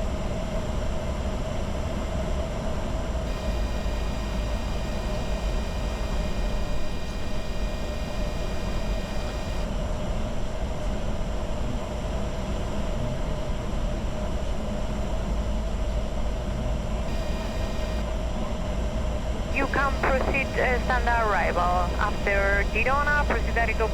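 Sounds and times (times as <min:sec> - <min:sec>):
jet cockpit airflow hum: 0:03.3 - 0:09.7, 0:17.0 - 0:18.1, 0:19.5 - 0:23.9.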